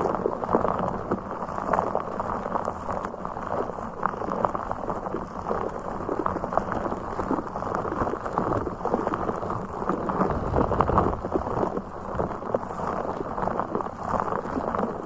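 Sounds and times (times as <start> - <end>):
low rumble: 9.6 - 12.0.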